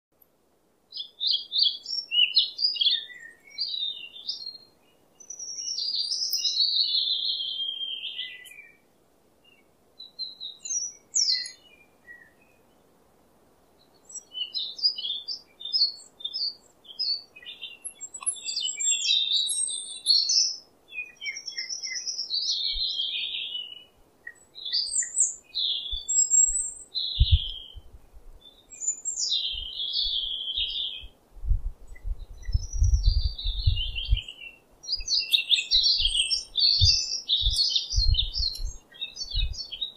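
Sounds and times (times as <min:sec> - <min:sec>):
songbirds singing and chirping: 0:00.2 - 0:39.9
faint low thumps: 0:31.4 - 0:34.2.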